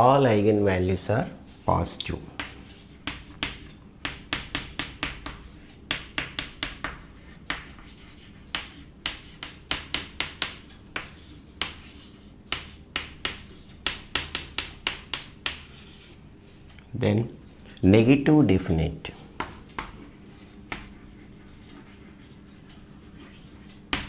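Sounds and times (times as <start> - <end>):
pen tapping and stroking while writing: 2.4 - 16.2, 19.4 - 24.0.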